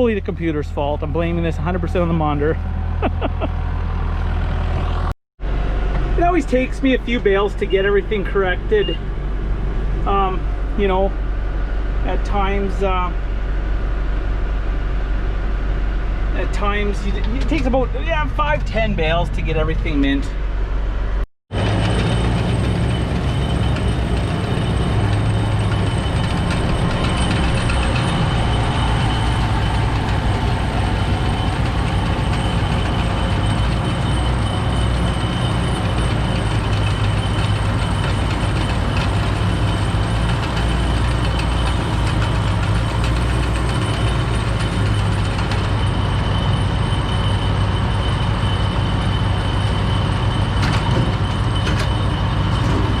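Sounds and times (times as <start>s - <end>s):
tractor engine running: 0.0s - 53.0s
thin high whine: 22.9s - 38.5s.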